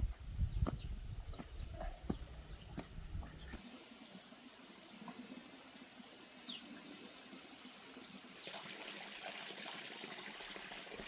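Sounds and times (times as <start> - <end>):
water trickling: 3.6 - 11.0.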